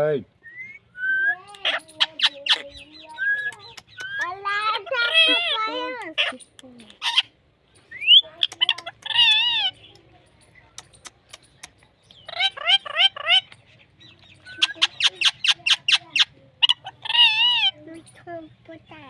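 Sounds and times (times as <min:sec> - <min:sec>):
parrot chirps: 0:00.4 - 0:18.2
parrot squawks: 0:04.8 - 0:07.3, 0:08.0 - 0:09.8, 0:12.2 - 0:13.6, 0:14.5 - 0:17.8
parrot wavering call: 0:14.5 - 0:17.8.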